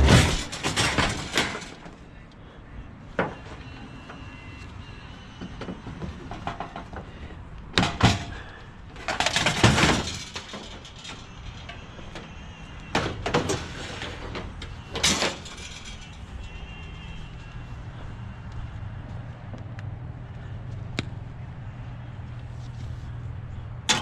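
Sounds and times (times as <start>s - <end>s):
objects clattering and knocking: 0.0s - 2.0s, 5.4s - 16.6s.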